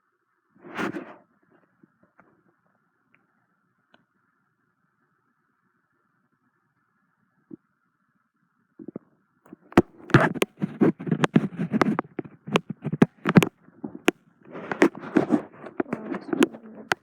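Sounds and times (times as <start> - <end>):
rustling and scraping: 0.6 - 2.4, 8.9 - 17.0
sharp clicks and knocks: 8.8 - 17.0.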